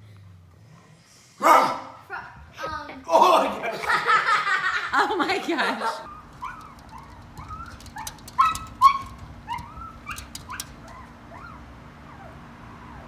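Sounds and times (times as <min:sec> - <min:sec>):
dog whining: 0:06.0 - 0:13.0.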